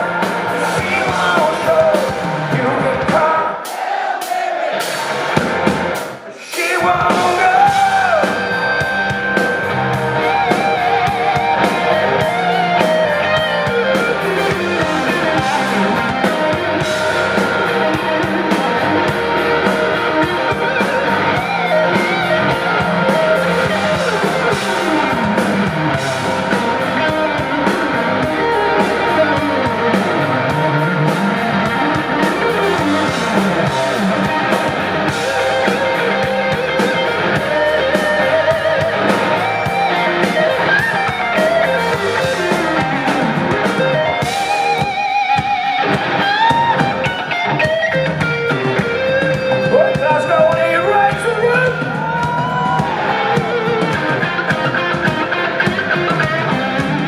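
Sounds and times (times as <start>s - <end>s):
electric guitar lead: 0.0s - 3.3s, 5.0s - 57.0s
bass guitar: 0.0s - 3.6s, 4.7s - 57.0s
drum beat: 0.1s - 57.0s.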